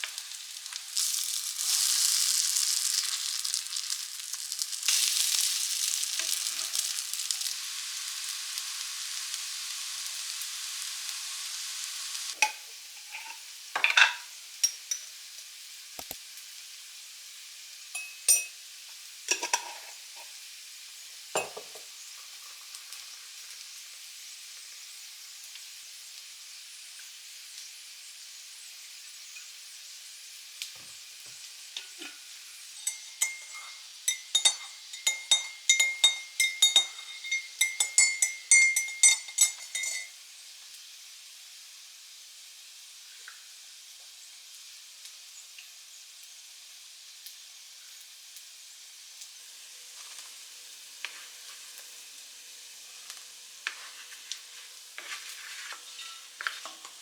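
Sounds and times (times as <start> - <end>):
metal utensil scraping a pan: 0.0 - 8.4, 12.3 - 15.0, 19.3 - 20.4, 31.8 - 40.2, 51.0 - 51.9, 53.0 - 57.0
food sizzling in a pan: 0.0 - 57.0.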